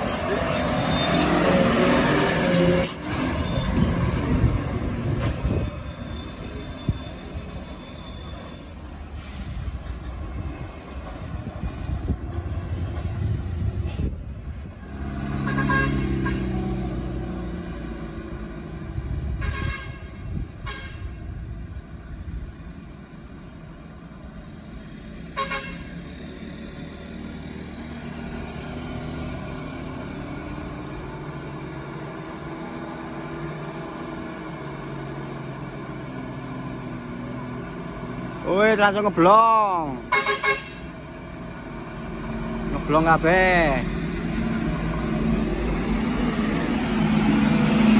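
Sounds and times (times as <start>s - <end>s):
truck diesel engine rumbling: 0.0s - 47.9s
truck horn: 14.8s - 16.6s, 19.4s - 21.2s, 25.3s - 26.0s, 40.1s - 41.0s.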